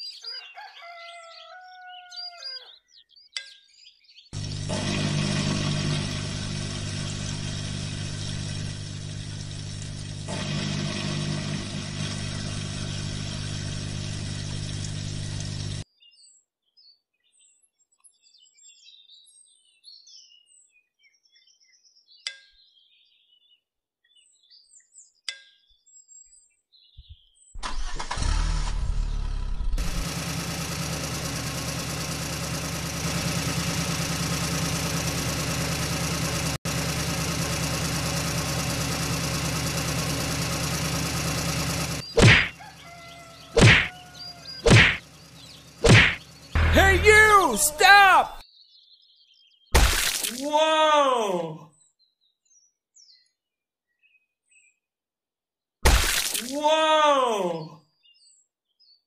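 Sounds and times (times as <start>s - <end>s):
birds chirping: 0.0s - 4.7s, 40.0s - 53.4s
toy tractor engine: 4.4s - 15.8s, 29.8s - 48.4s.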